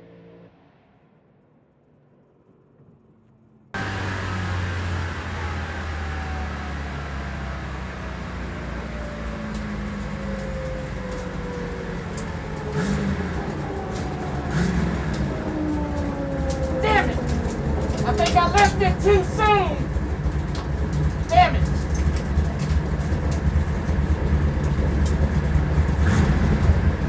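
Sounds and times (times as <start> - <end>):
car engine running: 3.8 - 27.0.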